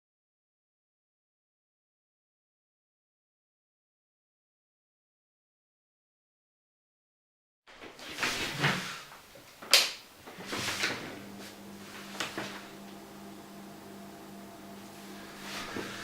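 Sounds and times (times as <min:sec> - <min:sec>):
fridge humming: 0:09.6 - 0:16.0.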